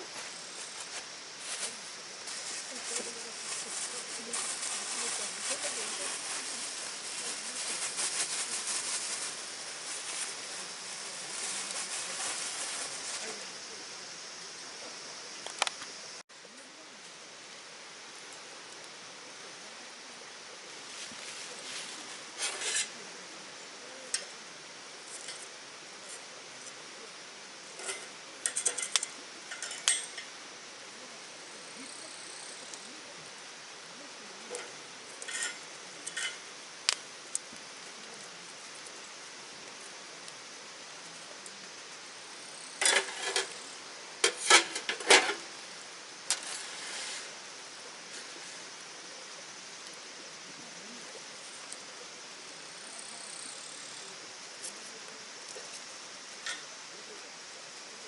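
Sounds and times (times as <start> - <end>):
steady background hiss: 0.0 - 58.0
metal camping gear clattering: 27.8 - 30.3, 34.6 - 36.5, 42.8 - 43.6, 44.2 - 45.6.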